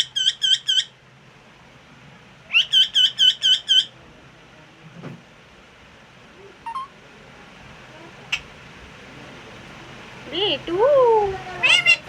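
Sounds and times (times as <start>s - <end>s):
parrot calling sharp notes: 6.7s - 6.9s.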